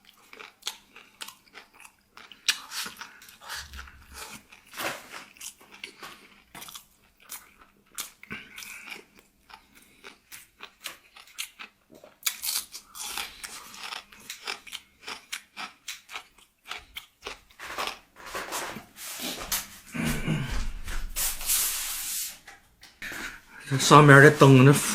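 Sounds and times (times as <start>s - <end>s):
person chewing crunchy food: 0.0s - 18.8s.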